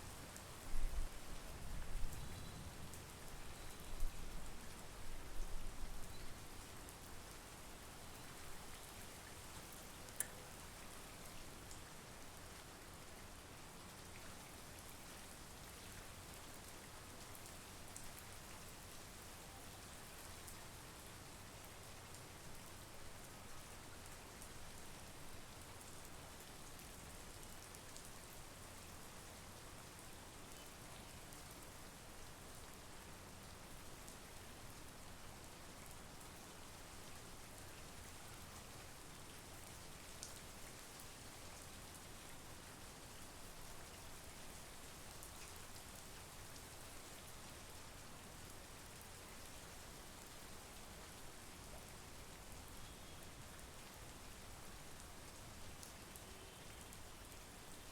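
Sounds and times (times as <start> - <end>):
raindrops ticking: 10.0 - 10.5.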